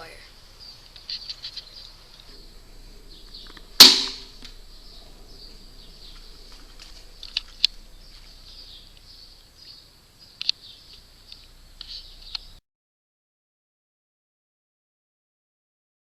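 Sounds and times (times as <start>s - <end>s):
faint high-pitched chirping: 0.0s - 12.6s
small sharp clicks: 10.4s - 12.6s.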